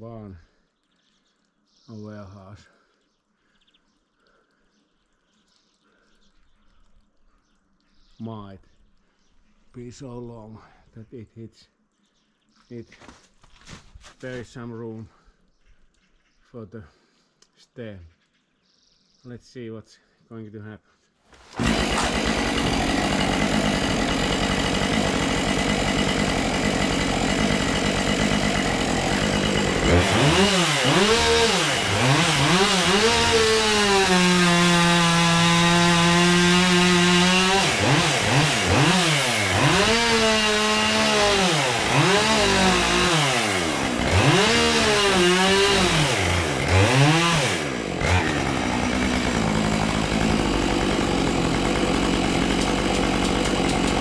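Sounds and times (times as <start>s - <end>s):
chainsaw idling and revving: 21.3s - 54.0s.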